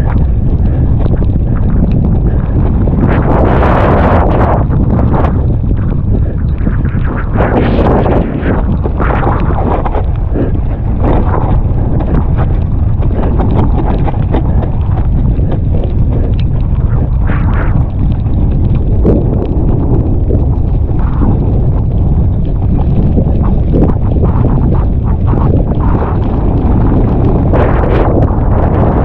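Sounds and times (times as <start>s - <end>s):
bike rattling over stony trail: 0.0s - 29.0s
wind buffeting microphone: 0.0s - 29.0s.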